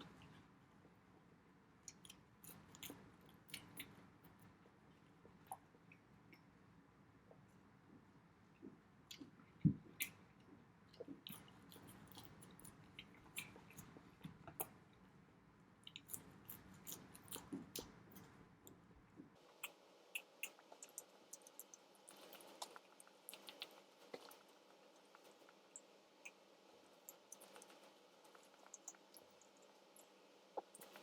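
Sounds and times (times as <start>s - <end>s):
low background hum: 0.0s - 31.0s
mouth clicks and wet sounds: 1.8s - 6.6s, 7.2s - 15.0s, 15.8s - 31.0s
chewing and biting food: 1.9s - 4.4s, 8.6s - 14.8s, 15.8s - 18.8s, 19.5s - 26.4s, 27.0s - 31.0s.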